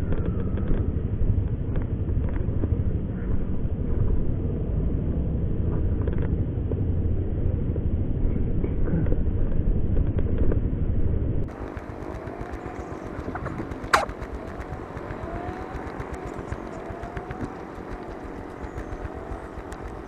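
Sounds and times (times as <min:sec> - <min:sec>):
low vehicle rumble: 0:00.0 - 0:20.0
open-air ambience: 0:00.0 - 0:20.0
faint gliding calls: 0:11.5 - 0:20.0.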